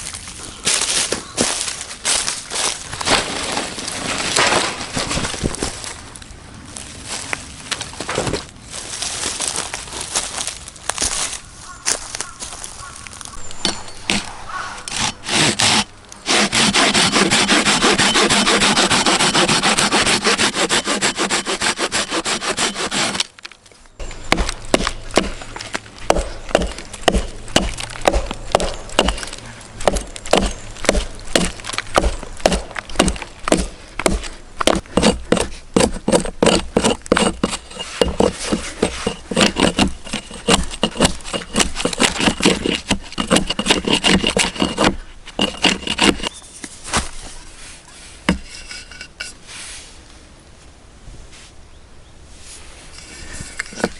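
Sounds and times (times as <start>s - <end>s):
hand saw cutting wood: 14.1s - 23.3s, 24.0s - 25.5s, 26.1s - 46.4s, 48.3s - 49.4s, 53.0s - 53.9s.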